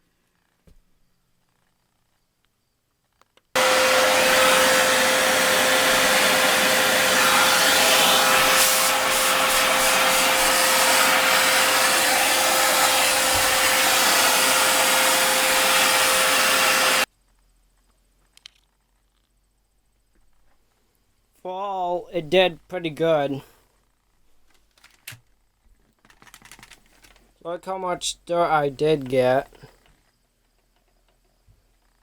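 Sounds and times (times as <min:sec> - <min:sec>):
vacuum cleaner running: 0:03.6 - 0:17.1.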